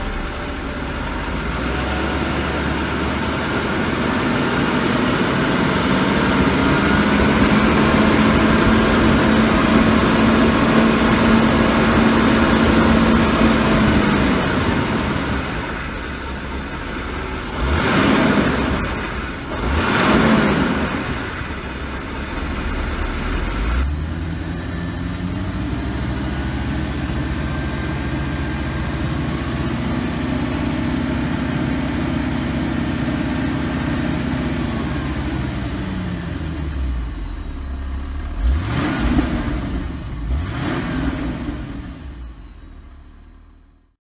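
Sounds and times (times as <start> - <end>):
car engine running and revving: 0.0 - 43.6.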